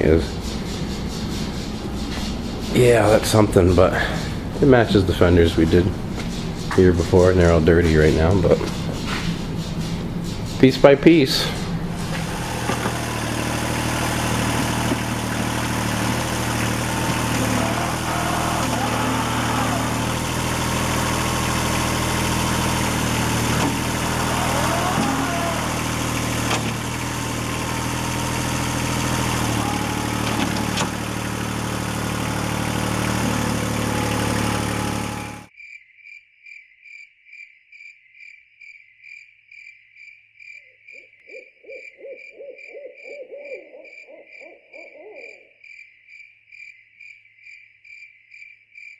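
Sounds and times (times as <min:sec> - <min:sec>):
tractor diesel engine running: 0:00.0 - 0:35.5
rapid hoots: 0:14.7 - 0:21.2, 0:23.1 - 0:27.0, 0:40.9 - 0:45.6
crickets chirping: 0:35.6 - 0:48.9.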